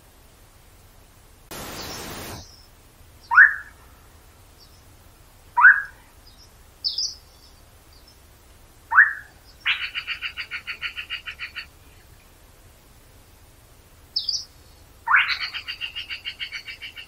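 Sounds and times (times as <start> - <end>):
forest birds calling: 1.5 - 17.0
rapid rattling bird trill: 15.1 - 17.0.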